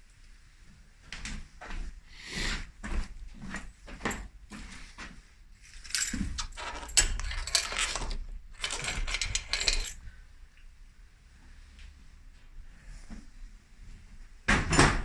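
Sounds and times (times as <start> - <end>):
small metal parts clinking: 5.6 - 10.1.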